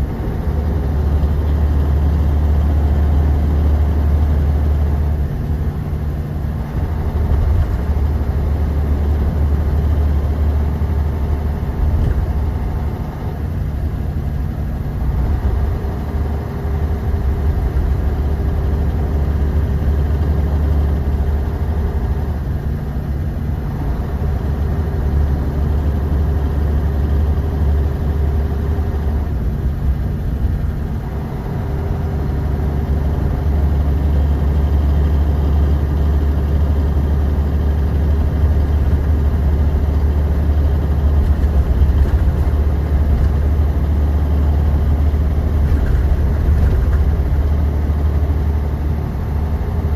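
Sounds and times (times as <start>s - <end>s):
bus engine drone: 0.0s - 49.9s.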